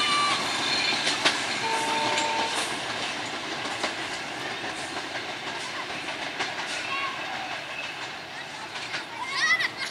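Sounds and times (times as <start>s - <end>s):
train wheels clacking over rail joints: 0.0s - 9.9s.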